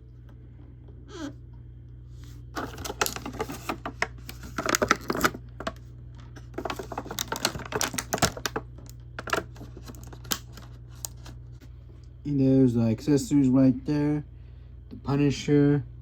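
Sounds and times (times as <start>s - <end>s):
plastic packaging clicks and crinkles: 2.6s - 11.4s.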